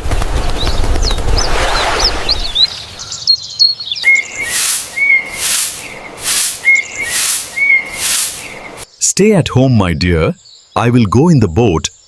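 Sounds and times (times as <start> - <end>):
birds chirping: 0.1 - 12.0
hiss: 4.1 - 8.8.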